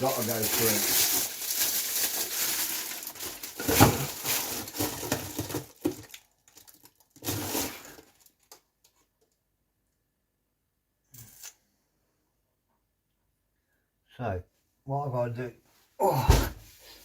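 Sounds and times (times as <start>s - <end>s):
rustling and crinkling handling noise: 0.0s - 9.4s.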